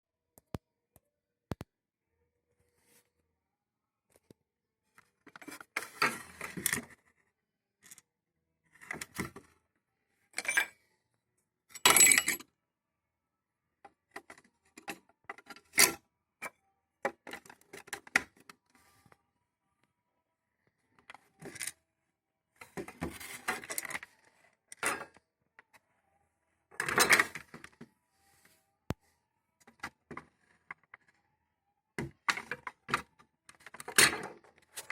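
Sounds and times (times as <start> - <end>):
kettle parts rattling and clicking: 10.4 - 10.7.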